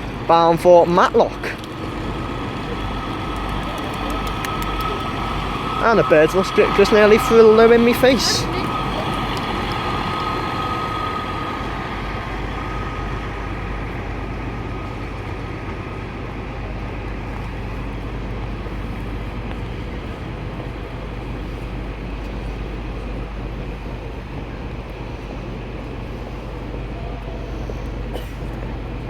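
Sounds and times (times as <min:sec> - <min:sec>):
high whine: 0:00.0 - 0:25.4
diesel engine low rumble: 0:00.0 - 0:29.0.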